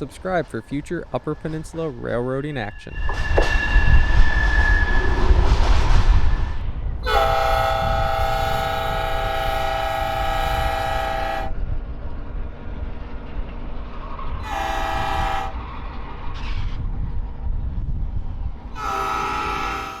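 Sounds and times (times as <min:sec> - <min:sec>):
locomotive engine and train rumble: 0:00.0 - 0:20.0
locomotive air horn blasts: 0:07.0 - 0:11.6, 0:14.4 - 0:15.7, 0:18.8 - 0:20.0.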